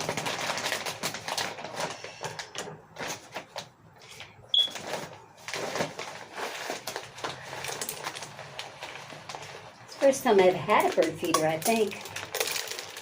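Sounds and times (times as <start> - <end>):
bird seed and bag rustling: 11.7 - 13.0.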